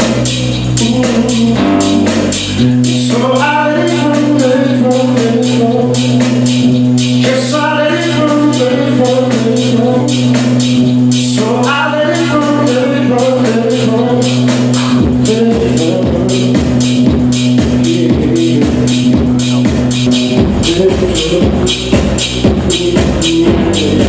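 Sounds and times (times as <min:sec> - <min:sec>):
held bass note: 0:00.0 - 0:03.2, 0:17.0 - 0:24.0
cymbal or tambourine beat: 0:00.0 - 0:24.0
person singing: 0:00.0 - 0:24.0.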